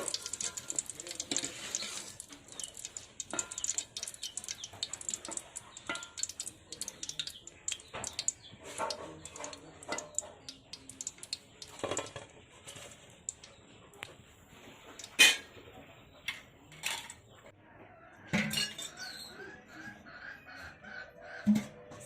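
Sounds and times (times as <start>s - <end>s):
rice balls frying in oil: 0.0s - 13.6s.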